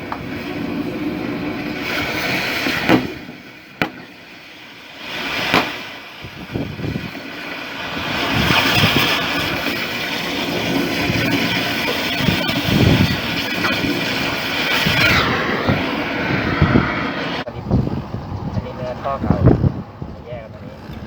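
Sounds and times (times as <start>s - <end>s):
hiss: 0.0s - 13.0s
machinery noise: 0.0s - 19.2s.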